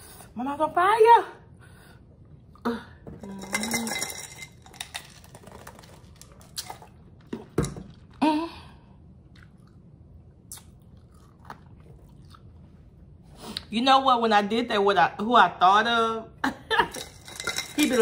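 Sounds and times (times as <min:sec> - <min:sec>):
person chewing food: 0:09.2 - 0:12.9
wet mouth clicks: 0:10.4 - 0:11.5.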